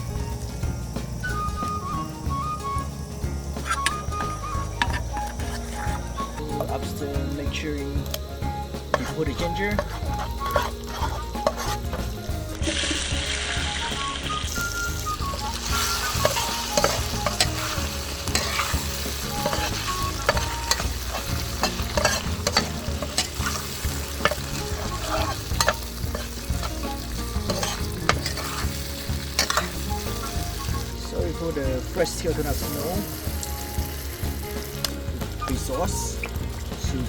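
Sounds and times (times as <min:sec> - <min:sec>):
ginger sizzling in hot oil: 0:00.0 - 0:37.0
utensil scraping a pan: 0:03.6 - 0:06.7, 0:08.9 - 0:12.1, 0:14.6 - 0:31.2.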